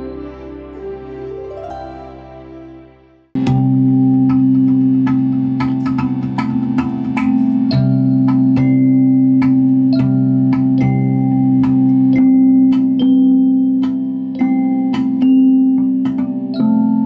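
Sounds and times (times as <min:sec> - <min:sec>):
handpan notes ringing: 0:03.4 - 0:17.0.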